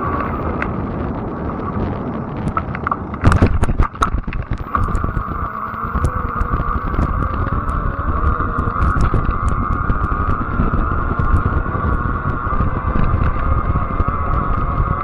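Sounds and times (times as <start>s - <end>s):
high electric motor whine: 0.0s - 0.7s, 4.6s - 15.0s
wind on microphone: 0.0s - 15.0s
tyre rumble: 1.7s - 15.0s.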